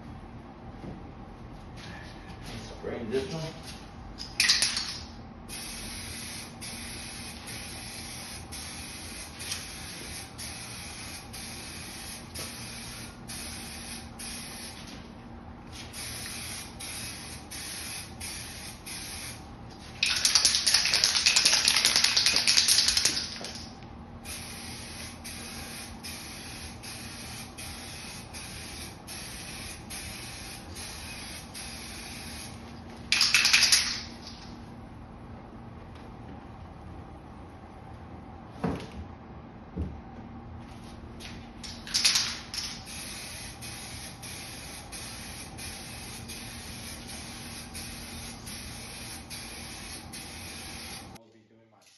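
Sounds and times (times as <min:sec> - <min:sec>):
aerosol can spraying: 0:42.8 - 0:51.2.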